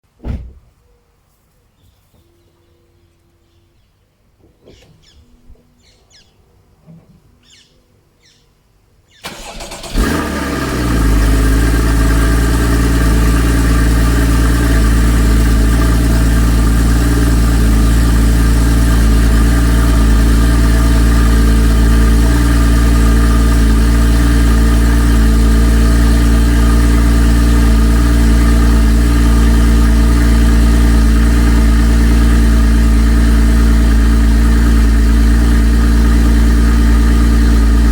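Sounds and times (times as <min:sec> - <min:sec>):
car engine cold start and idle: 0:09.2 - 0:37.9.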